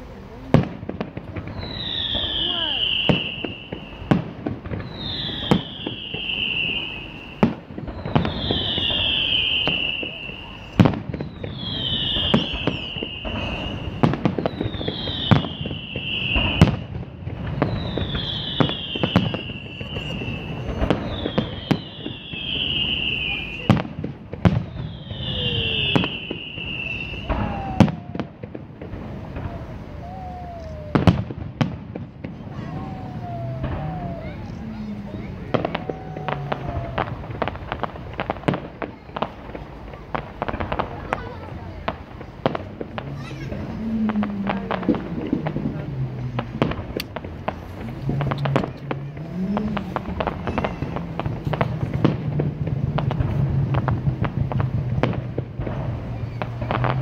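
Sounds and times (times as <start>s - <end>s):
fireworks bangs: 0.0s - 57.0s
firework whistle falling in pitch: 1.5s - 23.9s, 24.5s - 39.3s, 42.4s - 52.2s.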